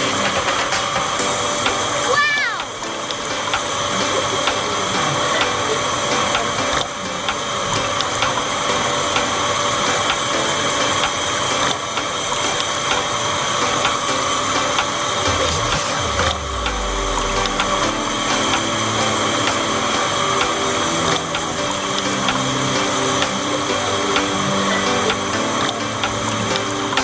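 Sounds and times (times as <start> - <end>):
rapid rattle of clicks: 0.0 - 27.0
small machine gear whine: 0.0 - 27.0
deep hum: 15.2 - 21.7.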